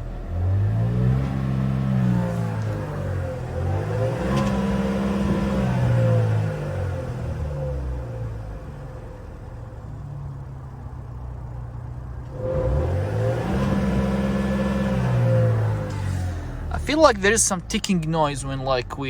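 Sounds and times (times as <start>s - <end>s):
car engine revving and idling: 0.0s - 19.0s.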